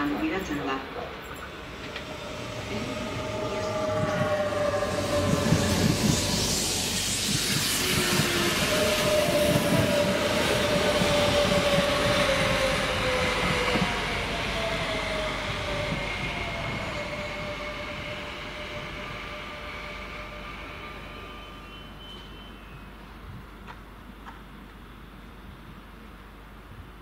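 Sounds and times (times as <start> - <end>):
steady whining tones: 0.0 - 25.4
train rushing noise: 0.0 - 26.8.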